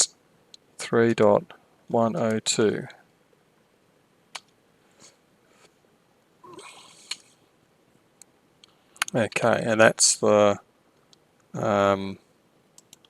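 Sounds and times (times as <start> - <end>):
soft rustle: 4.8 - 5.9
computer keyboard clicks: 12.8 - 13.0.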